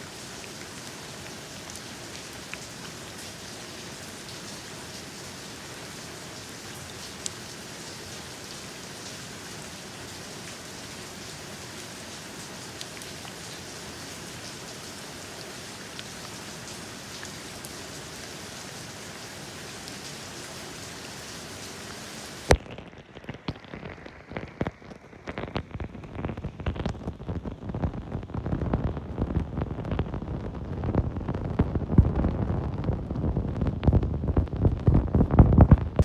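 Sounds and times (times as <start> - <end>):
rain hissing: 0.0 - 22.6
uneven rain patter: 0.0 - 36.0.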